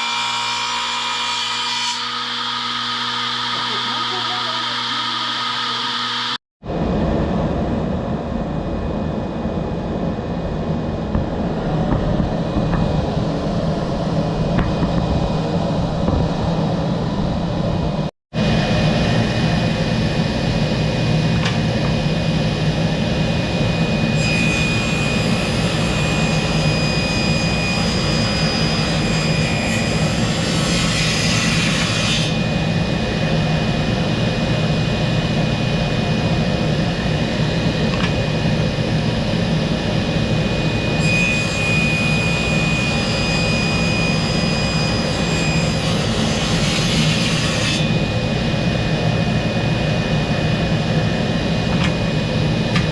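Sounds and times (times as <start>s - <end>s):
power tool humming: 1.9s - 6.4s.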